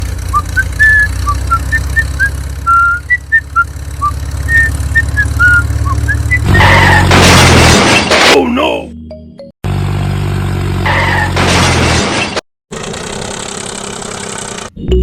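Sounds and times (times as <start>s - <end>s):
engine idling hum: 0.0s - 7.2s, 12.7s - 14.8s
high whistle-like chirps: 0.4s - 6.7s.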